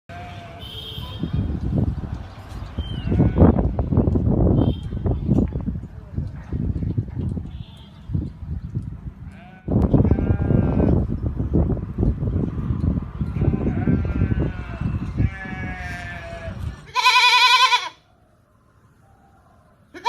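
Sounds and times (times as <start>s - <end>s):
livestock bleating: 0.1s - 0.7s, 9.3s - 11.0s, 13.4s - 18.0s.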